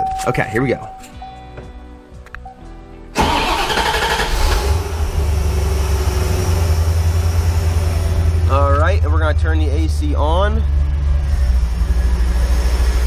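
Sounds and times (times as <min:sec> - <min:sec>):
car engine starting and idling: 0:03.1 - 0:13.0.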